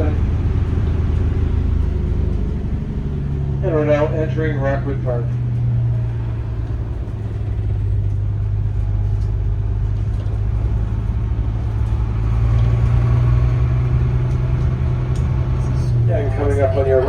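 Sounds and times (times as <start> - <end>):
bus engine droning: 0.0 - 17.0
road noise: 0.0 - 17.0.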